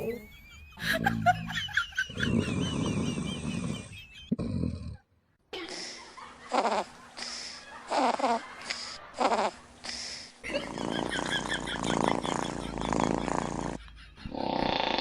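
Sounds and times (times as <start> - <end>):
dog snoring: 9.2 - 9.6, 10.5 - 15.0.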